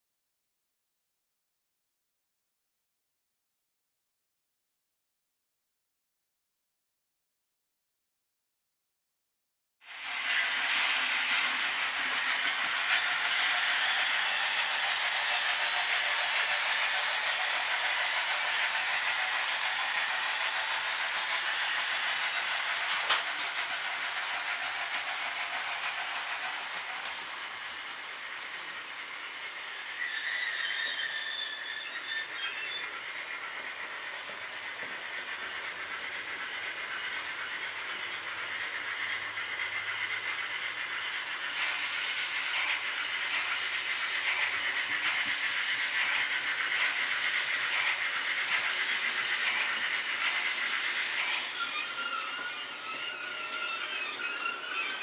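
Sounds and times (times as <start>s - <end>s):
model train wheels rolling on rails: 9.9s - 55.0s
high squeal: 29.6s - 33.1s, 46.8s - 55.0s.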